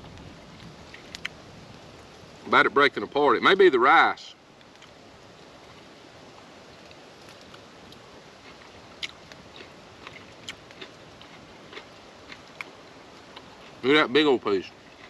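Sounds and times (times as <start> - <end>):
faint steady hiss: 0.0 - 15.0
person chewing food: 6.9 - 13.8.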